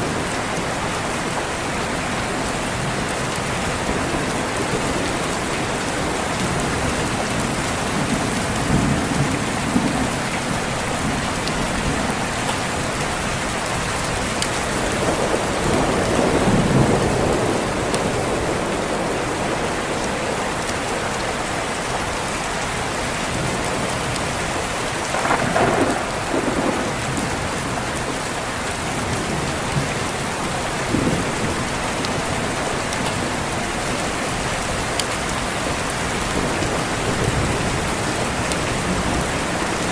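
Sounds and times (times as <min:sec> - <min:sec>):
steady rain falling: 0:00.0 - 0:39.9
distant thunder rumbling: 0:02.7 - 0:22.1, 0:25.0 - 0:34.5.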